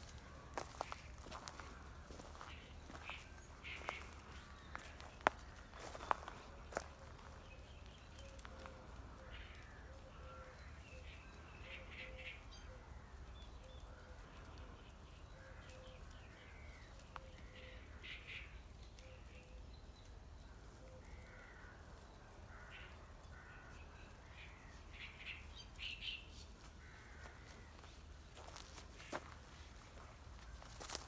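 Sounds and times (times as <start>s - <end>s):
faint bird calls: 0.1s - 13.0s.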